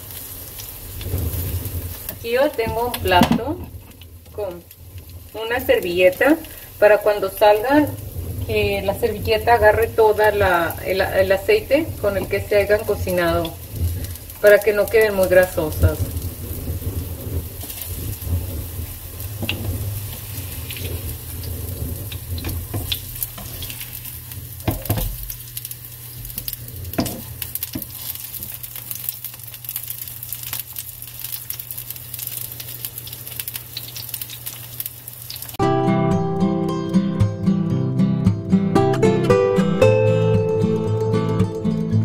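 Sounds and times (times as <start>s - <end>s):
patties sizzling in oil: 0.0s - 35.6s
turner scraping and knocking pan: 22.0s - 25.3s, 26.2s - 28.6s.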